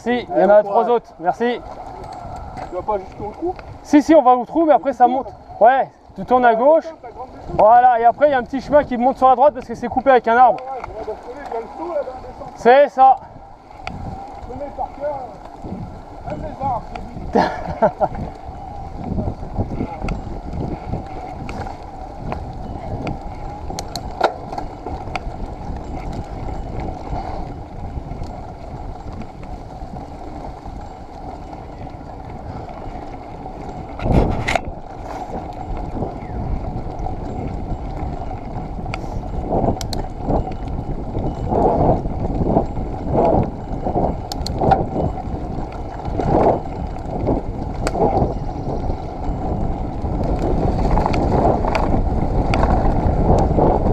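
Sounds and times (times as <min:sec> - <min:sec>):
bike rattling and clicking: 0:00.0 - 0:53.9
bike tyres on muddy trail: 0:00.0 - 0:53.9.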